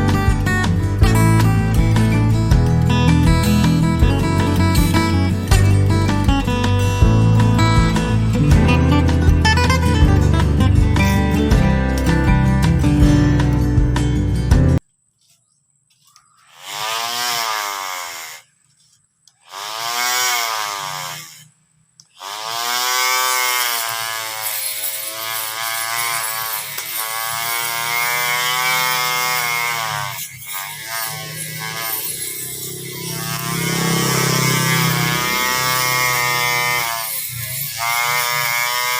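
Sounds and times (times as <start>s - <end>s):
electric lawn mower motor whirring: 16.2s - 38.9s.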